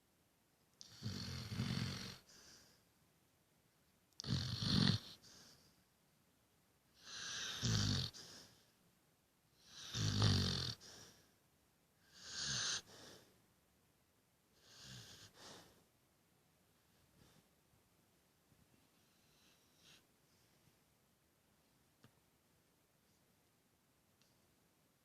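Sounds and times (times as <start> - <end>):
dog snoring: 0.8 - 2.7, 4.2 - 5.6, 7.0 - 8.6, 9.6 - 11.2, 12.0 - 13.3, 14.6 - 15.8, 19.0 - 20.0
soft breath: 2.2 - 3.0, 5.2 - 5.9, 7.3 - 8.8, 10.8 - 11.4, 12.8 - 13.4, 14.6 - 16.0, 16.8 - 17.6, 18.7 - 20.9.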